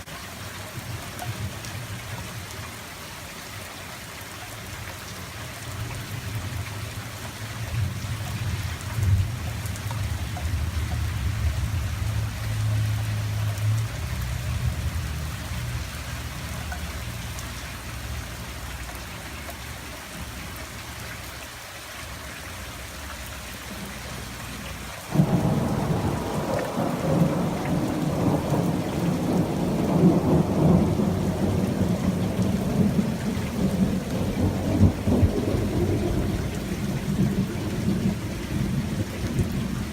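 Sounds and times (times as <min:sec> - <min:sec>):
steady rain falling: 0:00.0 - 0:39.9
loud thunder crack: 0:25.1 - 0:39.7
low roll of thunder: 0:25.1 - 0:39.9.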